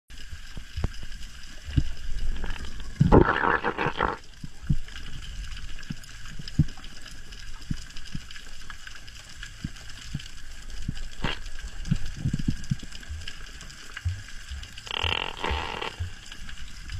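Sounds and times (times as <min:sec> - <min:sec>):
dense bubbling burst: 0:01.7 - 0:04.2
low underwater knocks: 0:14.0 - 0:16.2.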